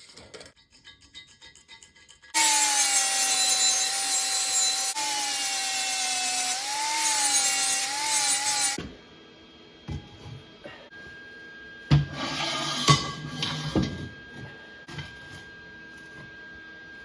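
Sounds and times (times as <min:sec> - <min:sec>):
angle grinder cutting steel: 0:02.3 - 0:08.8.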